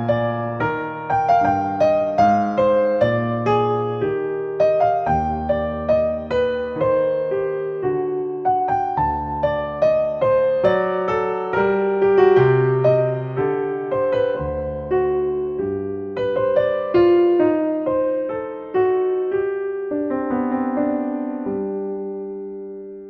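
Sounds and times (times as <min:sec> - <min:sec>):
gentle solo piano music: 0:00.0 - 0:23.0.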